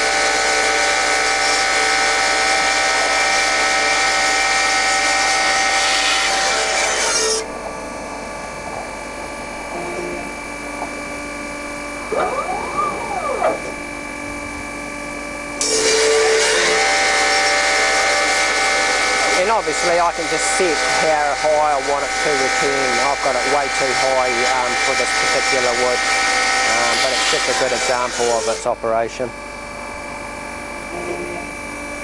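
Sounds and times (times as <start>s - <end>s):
bandsaw whine: 0.0s - 28.8s
bandsaw cutting hiss: 26.7s - 28.7s.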